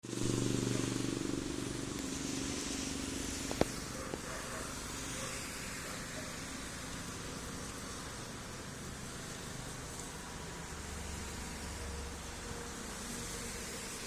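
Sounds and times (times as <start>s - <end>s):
low hum: 0.0s - 6.0s
heavy rain: 0.0s - 14.0s.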